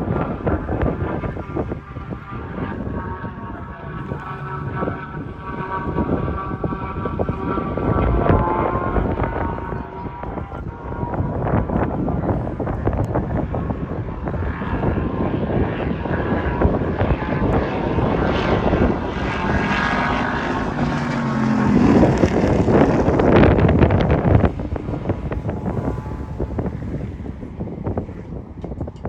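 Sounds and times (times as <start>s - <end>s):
sports car engine passing by: 17.9s - 28.6s.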